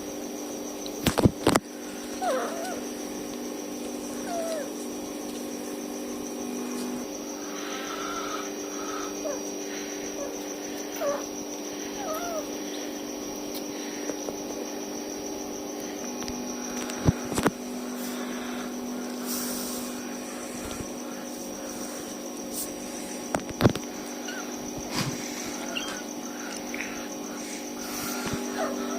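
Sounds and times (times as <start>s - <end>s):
steady hum: 0.0s - 28.9s
kittens mewing faintly: 2.2s - 2.9s, 8.3s - 13.0s, 24.1s - 28.9s.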